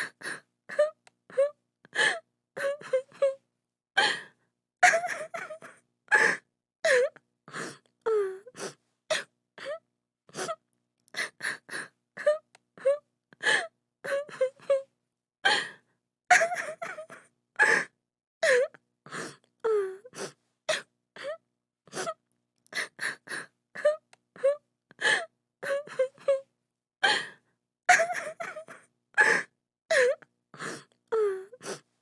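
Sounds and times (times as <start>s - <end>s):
woman sobbing: 4.8s - 7.1s, 16.3s - 18.7s, 23.8s - 26.4s, 27.9s - 30.2s.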